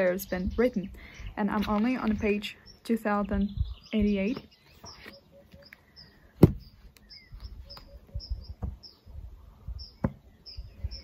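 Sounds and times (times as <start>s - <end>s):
birds chirping: 0.0s - 11.0s
sharp knocks: 6.4s - 6.7s, 10.0s - 10.2s.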